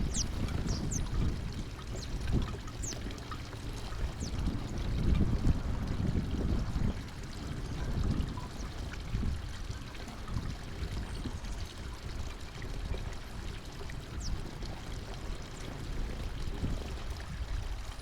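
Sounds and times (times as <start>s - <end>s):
small birds chirping: 0.0s - 1.3s, 1.9s - 4.7s, 14.0s - 14.5s.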